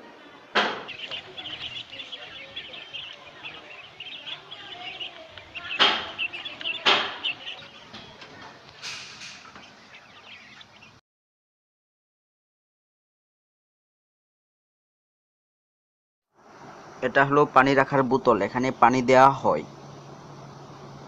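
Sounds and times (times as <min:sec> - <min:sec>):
quail chirping and peeping: 0:00.4 - 0:11.0
loud sharp knocks: 0:00.5 - 0:01.1, 0:05.7 - 0:08.1.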